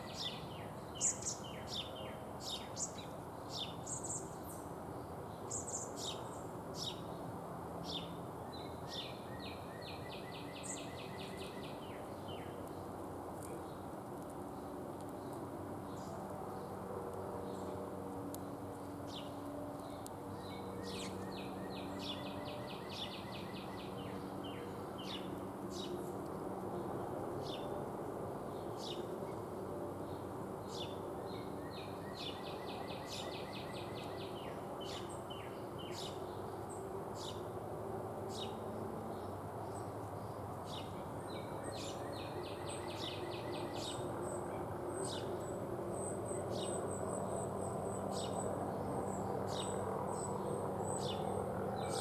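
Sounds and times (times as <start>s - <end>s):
rapid trilled birdsong: 0.0s - 4.7s, 18.4s - 26.1s, 30.7s - 37.5s, 39.2s - 52.0s
songbirds chirping: 0.0s - 27.8s, 28.4s - 37.6s, 38.3s - 52.0s
steady background noise: 0.0s - 52.0s.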